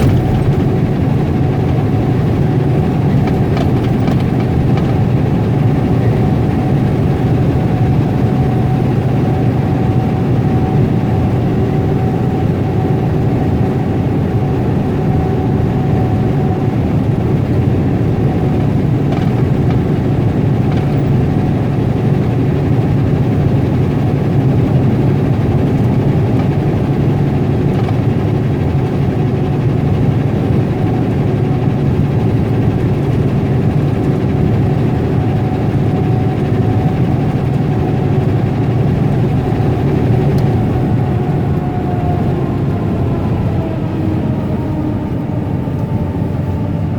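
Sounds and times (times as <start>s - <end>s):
truck engine drone: 0.0s - 46.9s.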